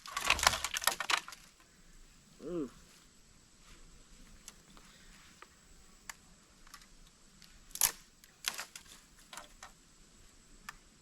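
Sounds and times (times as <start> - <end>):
rattle of clicks: 0.0 - 1.5, 6.1 - 9.8.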